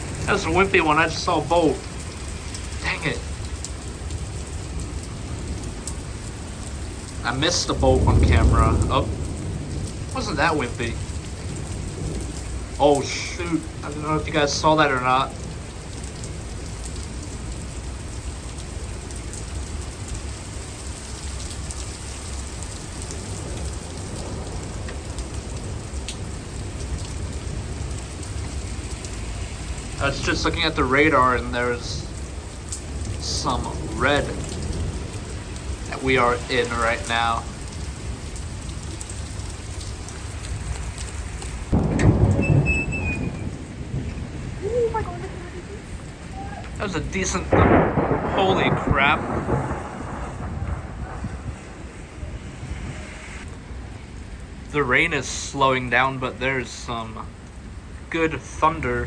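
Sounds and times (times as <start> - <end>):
heavy rain: 0.0 - 59.0
thunderclap rumbling: 0.0 - 59.0
low rumble: 5.1 - 14.6, 41.5 - 54.4.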